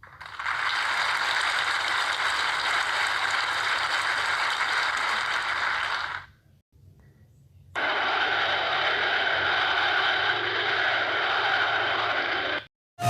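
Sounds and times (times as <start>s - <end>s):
crowd applauding: 0.0s - 6.3s.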